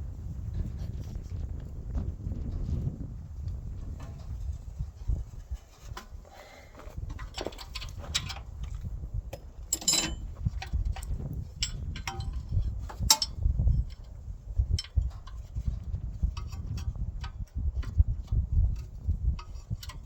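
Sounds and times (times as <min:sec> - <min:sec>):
low rumble of handling noise: 0:00.0 - 0:20.0
wrench clinking on steel: 0:07.2 - 0:14.1, 0:14.7 - 0:15.4.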